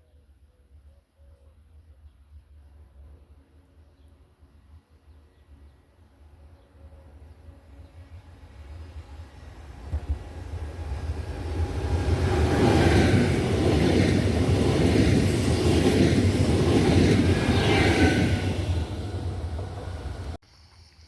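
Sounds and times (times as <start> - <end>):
train rumbling past: 7.1 - 20.4
high-pitched wheel on rail: 9.2 - 20.4.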